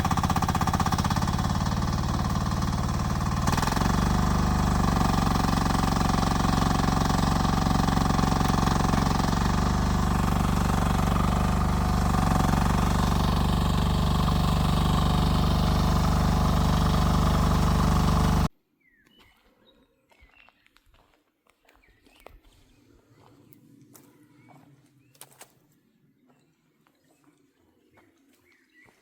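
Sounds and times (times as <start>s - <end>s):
excavator engine running: 0.0s - 18.5s.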